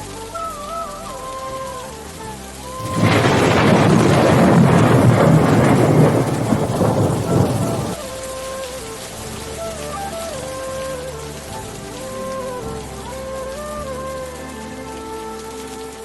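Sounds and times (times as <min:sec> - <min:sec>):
rain falling: 0:02.8 - 0:08.0
thunderclap rumbling: 0:02.8 - 0:08.0.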